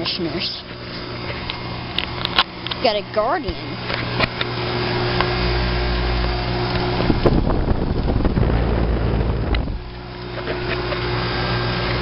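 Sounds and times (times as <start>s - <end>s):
air conditioner unit humming: 0.0s - 12.0s
wind buffeting microphone: 6.6s - 10.0s.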